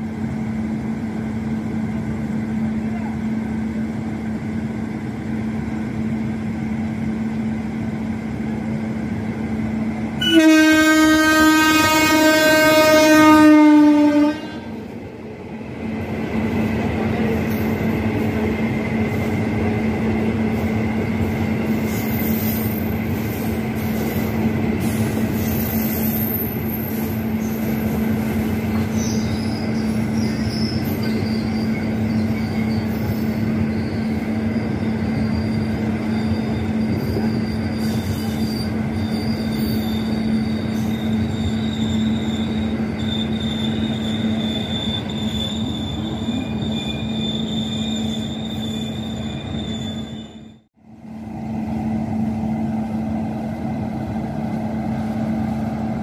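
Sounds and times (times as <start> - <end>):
train coaches rumbling and clattering: 0.0 - 56.0
locomotive horn blast: 10.2 - 14.8
faint high wheel squeals: 21.8 - 50.7.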